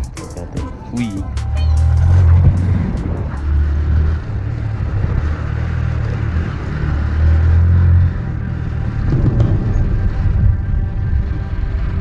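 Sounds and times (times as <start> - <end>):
gusting wind buffeting microphone: 0.0 - 12.0.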